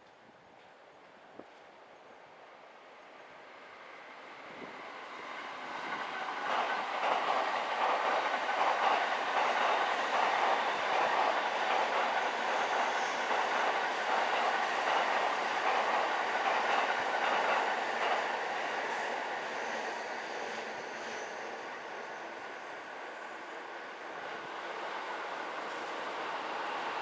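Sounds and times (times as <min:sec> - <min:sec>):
train passing on tracks: 0:00.5 - 0:27.0.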